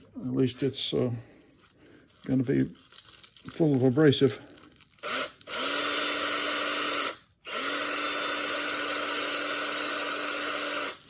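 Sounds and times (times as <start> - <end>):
electric drill running: 5.0 - 11.0.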